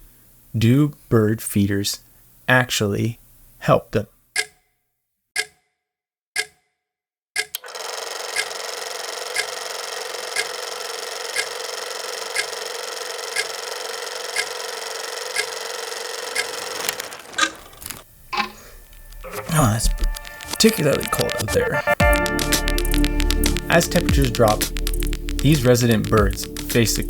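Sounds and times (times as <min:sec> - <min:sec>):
clock ticking: 0:04.4 - 0:04.6, 0:05.4 - 0:05.6, 0:06.4 - 0:06.6, 0:07.4 - 0:08.6, 0:09.3 - 0:09.6, 0:10.3 - 0:27.0.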